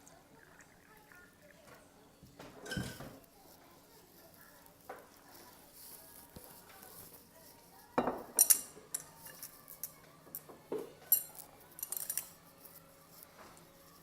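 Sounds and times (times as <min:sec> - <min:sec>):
utensils clinking against bowl: 0:02.6 - 0:03.2, 0:08.0 - 0:13.2.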